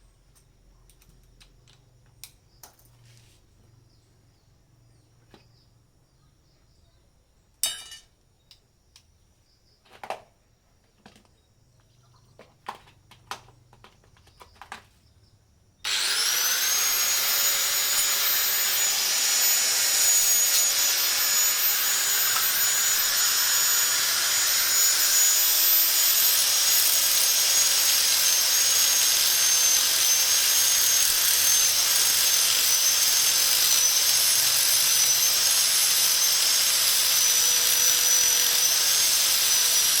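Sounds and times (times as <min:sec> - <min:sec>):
angle grinder whining: 0:15.8 - 0:40.0.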